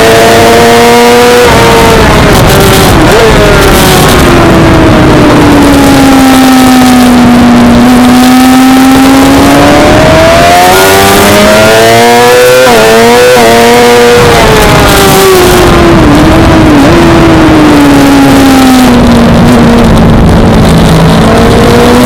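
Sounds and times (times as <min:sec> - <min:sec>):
motorcycle gear changes: 0:00.0 - 0:15.8
racing motorcycle engine: 0:00.0 - 0:22.0.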